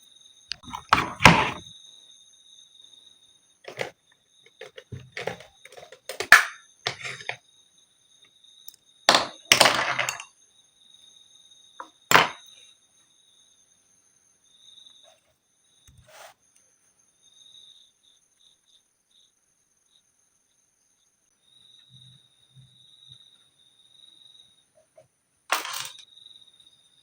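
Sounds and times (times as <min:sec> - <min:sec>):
painting supplies knocking on desk: 0:00.6 - 0:01.6, 0:04.6 - 0:07.3.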